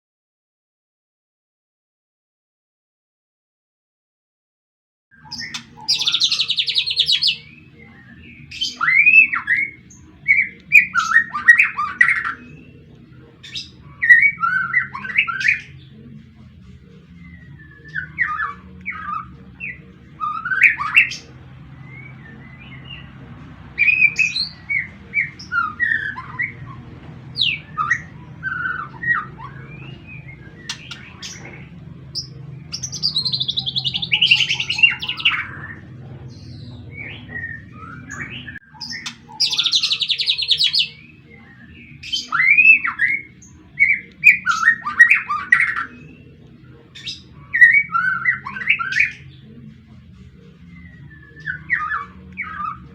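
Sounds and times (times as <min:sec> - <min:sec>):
bird singing whistled phrases: 0:05.2 - 0:07.6, 0:08.2 - 0:12.8, 0:13.4 - 0:15.8, 0:17.2 - 0:21.2, 0:23.8 - 0:26.8, 0:32.2 - 0:35.8, 0:36.9 - 0:46.0, 0:50.8 - 0:52.9.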